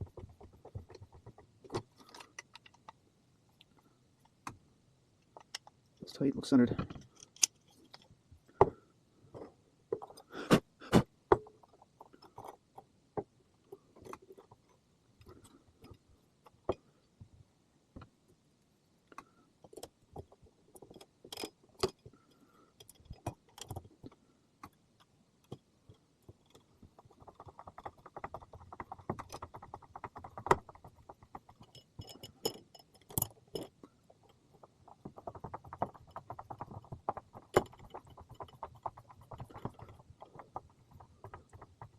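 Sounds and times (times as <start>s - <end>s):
sharp clicks and knocks: 0.0s - 3.0s, 5.2s - 6.1s, 22.8s - 41.9s
rapid rattling clicks: 26.3s - 41.9s.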